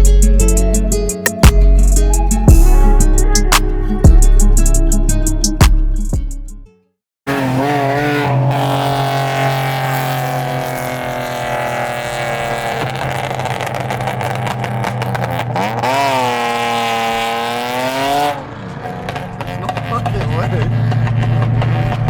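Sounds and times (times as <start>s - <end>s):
car engine revving under load: 7.3s - 22.0s.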